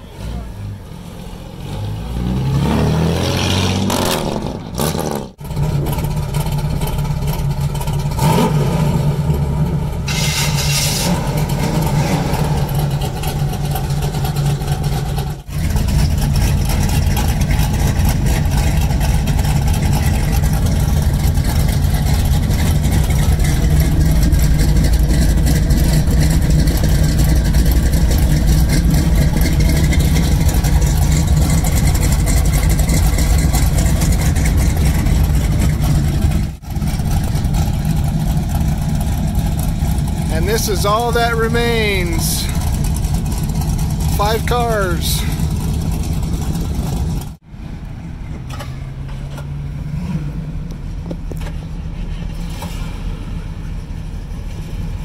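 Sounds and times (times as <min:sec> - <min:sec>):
pickup engine revving: 0:00.0 - 0:47.4
car engine idling: 0:04.4 - 0:55.0.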